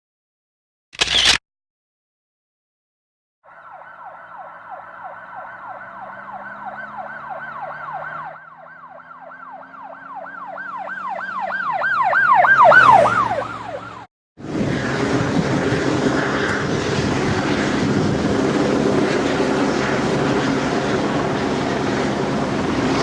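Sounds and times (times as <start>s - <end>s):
emergency siren yelping: 3.4s - 14.1s
engine hum: 3.6s - 23.0s.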